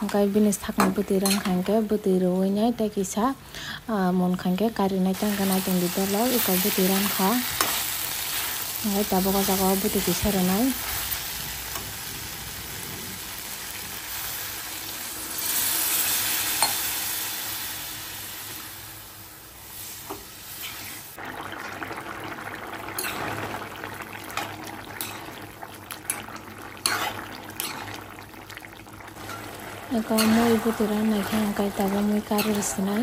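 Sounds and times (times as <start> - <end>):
metal spoon scraping a pan: 0.8 - 1.6, 23.0 - 23.2, 25.0 - 25.4, 26.1 - 28.0, 29.2 - 33.0
curry sizzling in a wok: 5.1 - 33.0.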